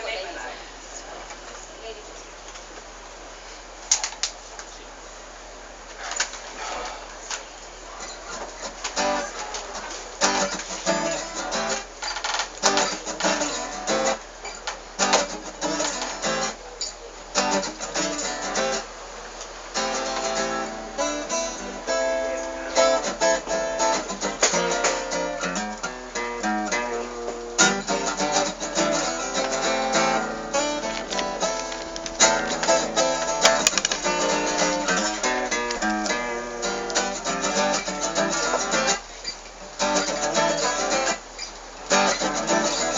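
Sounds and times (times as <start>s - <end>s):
acoustic guitar strummed and picked: 7.9s - 18.9s, 19.7s - 42.9s.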